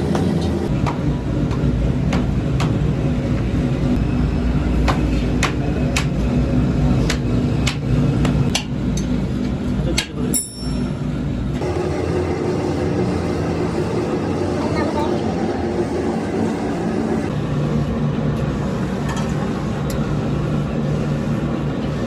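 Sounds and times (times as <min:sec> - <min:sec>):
low machinery rumble: 0:00.0 - 0:22.0
ringing metal clang: 0:10.3 - 0:11.1.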